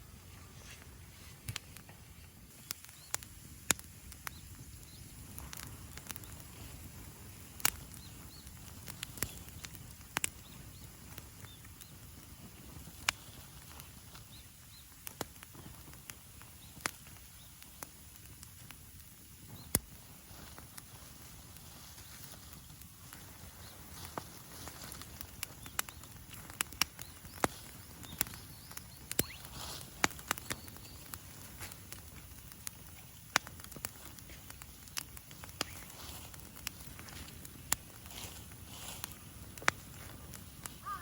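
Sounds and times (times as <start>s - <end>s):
bonfire crackling and popping: 0.0s - 41.0s.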